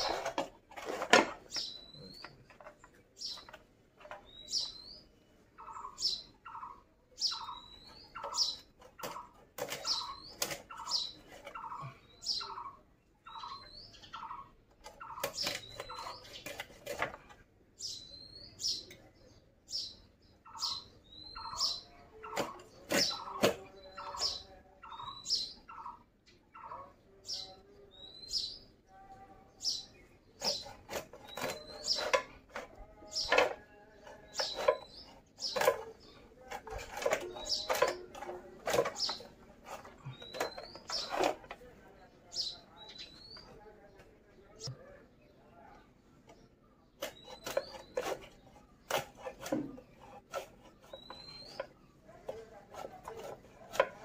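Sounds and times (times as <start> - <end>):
lower bird chirps: 17.8 - 50.1
knife cutting through fish: 47.0 - 51.6.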